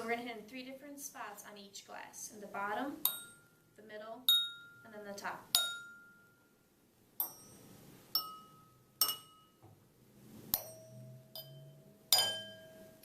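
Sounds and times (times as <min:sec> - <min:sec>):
glass ringing tone: 0:03.0 - 0:03.6, 0:04.3 - 0:04.9, 0:05.5 - 0:06.6, 0:07.2 - 0:09.6, 0:10.6 - 0:13.0
fork clinking wine glasses: 0:08.2 - 0:09.6, 0:10.6 - 0:12.9.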